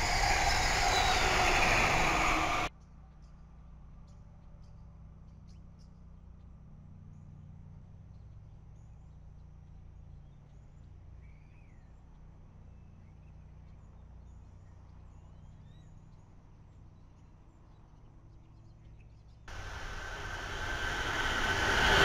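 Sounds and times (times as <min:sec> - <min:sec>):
steady low rumble: 0:00.0 - 0:02.7, 0:19.5 - 0:22.0.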